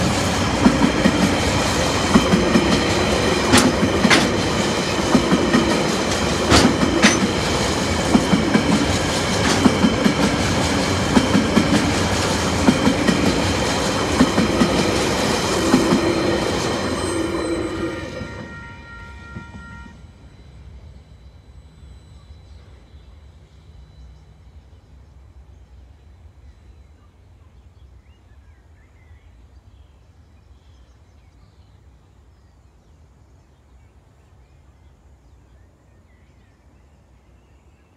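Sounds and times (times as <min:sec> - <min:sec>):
freight train low rumble: 0:00.0 - 0:37.9
high ringing: 0:16.0 - 0:21.9.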